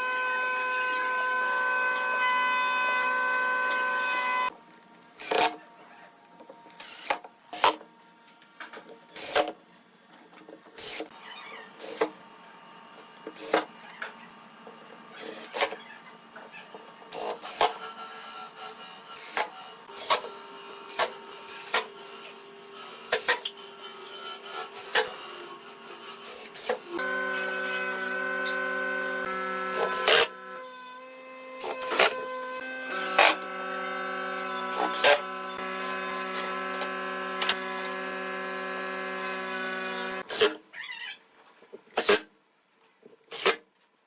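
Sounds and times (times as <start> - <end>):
power tool motor humming: 26.2 - 40.3.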